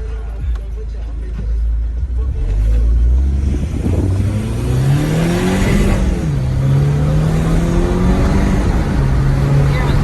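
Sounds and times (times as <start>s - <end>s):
car engine accelerating hard: 2.3s - 10.0s.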